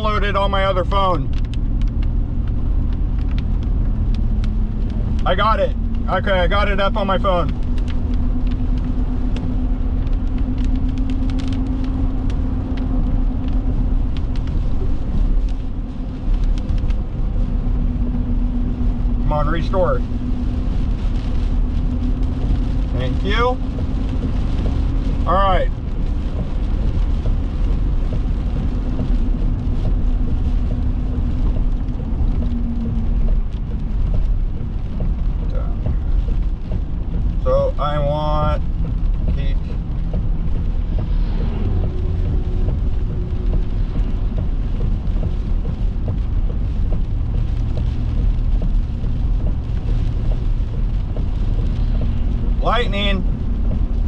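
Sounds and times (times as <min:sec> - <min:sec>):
car road noise and hum: 0:00.0 - 0:54.0.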